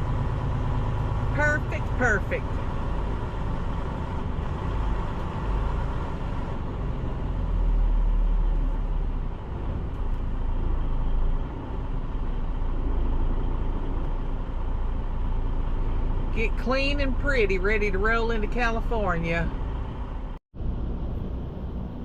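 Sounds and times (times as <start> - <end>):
semi-truck engine rumbling: 0.0 - 22.0.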